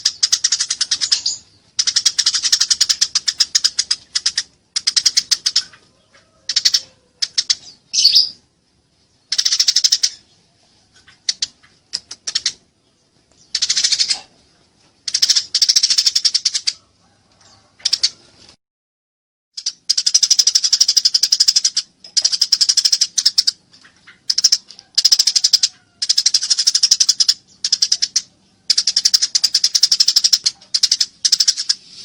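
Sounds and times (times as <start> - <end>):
sparrows chirping: 0.0 - 14.5, 15.1 - 16.8, 19.6 - 32.0.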